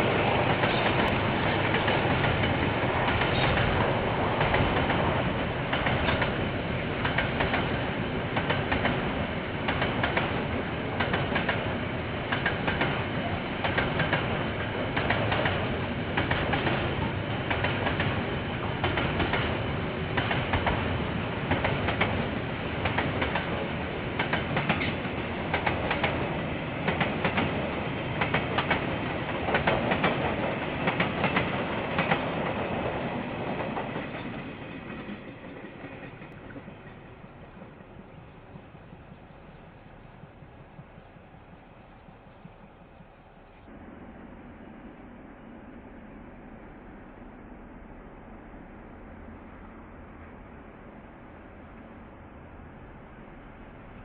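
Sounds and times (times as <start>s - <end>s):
train wagons rumbling: 0.0s - 44.9s
wheels clacking over rail joints: 0.4s - 43.1s.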